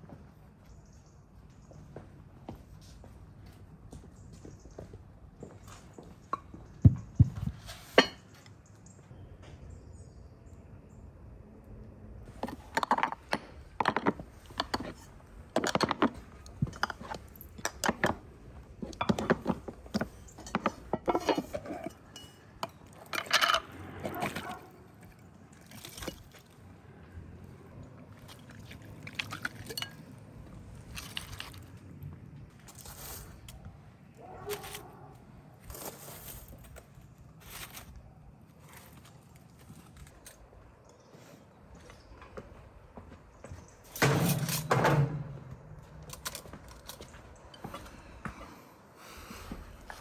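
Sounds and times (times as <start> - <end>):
dishes and cutlery clinking: 7.7 - 8.4, 18.8 - 24.7, 28.6 - 30.2.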